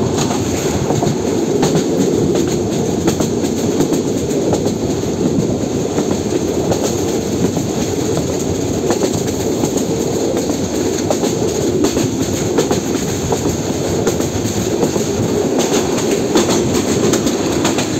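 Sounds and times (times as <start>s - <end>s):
train rumble from on board: 0.0s - 17.9s
wheels clicking on rails: 0.0s - 17.9s.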